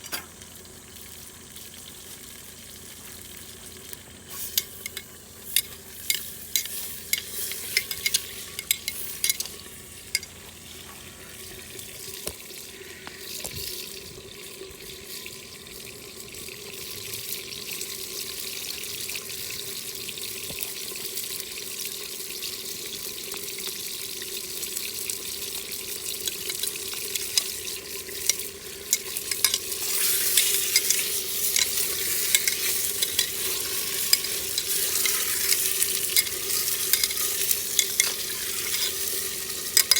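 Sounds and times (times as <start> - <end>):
food sizzling in a pot: 0.0 - 39.9
utensil clicking while stirring: 4.4 - 10.4, 26.2 - 39.9.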